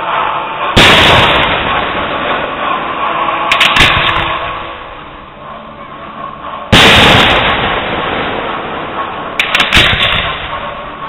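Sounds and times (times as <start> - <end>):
firework cracks: 0.8 - 4.9, 6.7 - 11.0
firework shell bursting boom: 0.8 - 5.0, 6.7 - 11.0.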